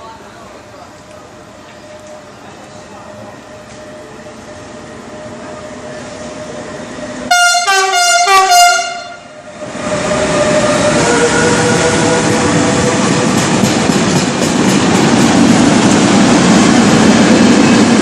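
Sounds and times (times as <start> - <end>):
train running past: 0.0 - 18.0
two-tone train horn blasts: 7.3 - 9.4.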